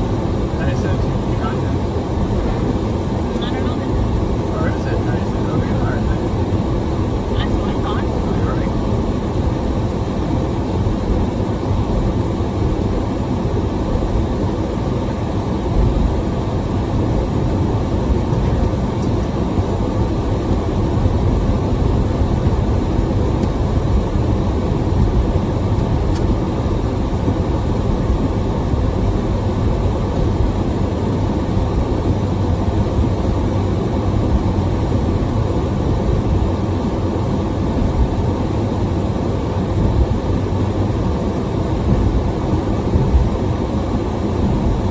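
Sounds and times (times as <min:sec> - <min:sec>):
road noise: 0:00.0 - 0:44.9
wind noise: 0:15.4 - 0:36.7, 0:39.6 - 0:44.9.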